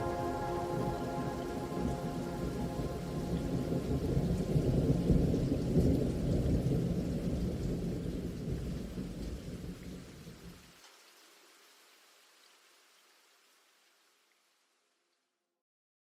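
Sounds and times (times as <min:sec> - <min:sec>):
rolling thunder: 0:00.0 - 0:09.8
steady rain: 0:00.0 - 0:15.0.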